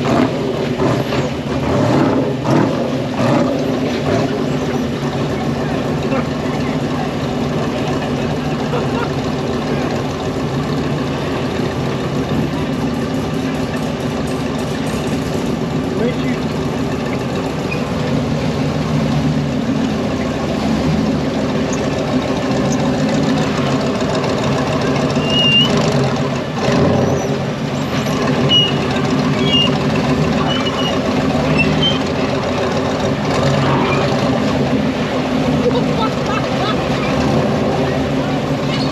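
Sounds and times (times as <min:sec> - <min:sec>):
engine running at low revs: 0:00.0 - 0:38.9
short high squeaks: 0:17.6 - 0:18.0, 0:25.2 - 0:25.8, 0:28.0 - 0:29.8, 0:30.4 - 0:32.2, 0:38.7 - 0:38.9.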